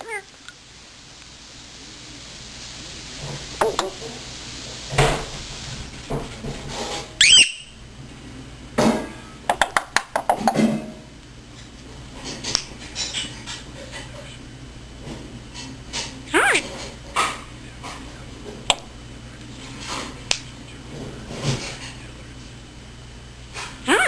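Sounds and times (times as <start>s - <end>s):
parrot squeaky whistle: 7.2s - 7.8s.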